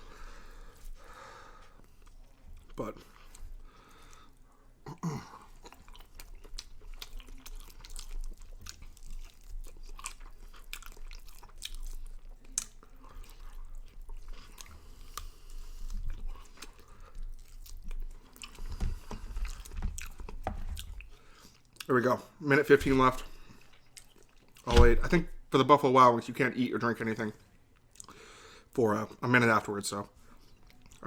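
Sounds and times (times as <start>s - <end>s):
person chewing chicken wings: 1.7s - 21.9s, 22.7s - 24.7s, 27.8s - 28.2s, 30.4s - 31.0s.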